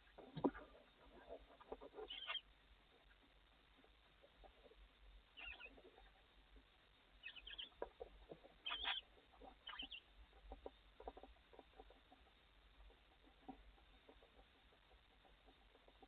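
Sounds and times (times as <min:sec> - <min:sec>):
soft rustling and scraping: 0:00.0 - 0:02.2
owls chittering squeaks: 0:01.6 - 0:02.5, 0:05.4 - 0:06.0, 0:07.2 - 0:08.0, 0:08.6 - 0:10.1.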